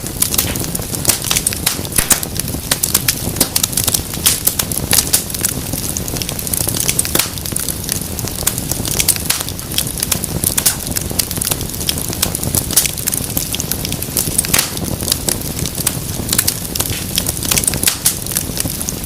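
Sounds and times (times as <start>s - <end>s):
fire popping and snapping: 0.0s - 19.0s
low rumble of burning: 0.0s - 19.0s.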